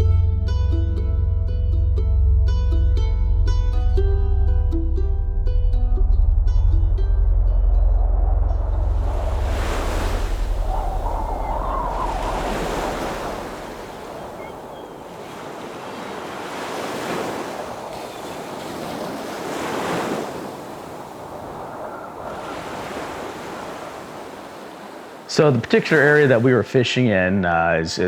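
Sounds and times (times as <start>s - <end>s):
waves breaking: 7.7s - 27.7s.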